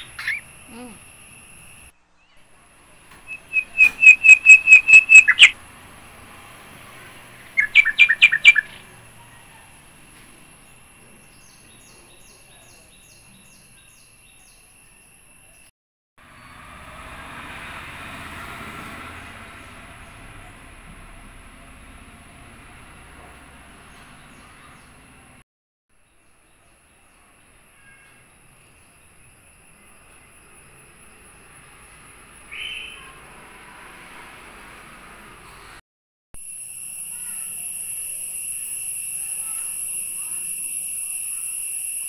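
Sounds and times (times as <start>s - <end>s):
faint high tone: 0.0s - 1.0s, 36.7s - 42.0s
bird calling sharp notes: 3.3s - 5.6s, 7.6s - 8.8s.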